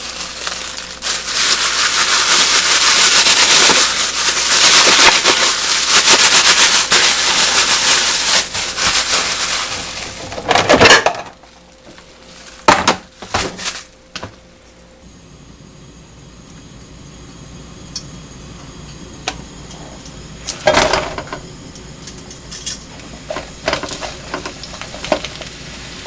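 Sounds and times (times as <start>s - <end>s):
crunching and scraping food: 0.0s - 14.1s, 22.1s - 26.0s
kitchen clatter: 0.0s - 14.4s, 19.7s - 26.0s.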